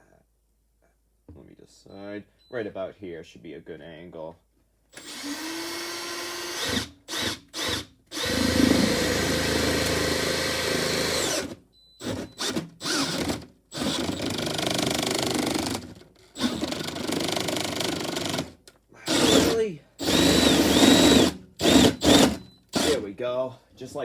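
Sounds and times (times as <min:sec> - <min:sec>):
cordless drill boring through wall: 0:04.9 - 0:23.1.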